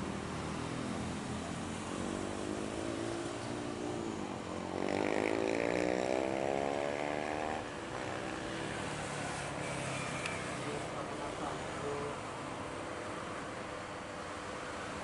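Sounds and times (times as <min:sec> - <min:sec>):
small motorcycle accelerating past: 0:02.1 - 0:10.8.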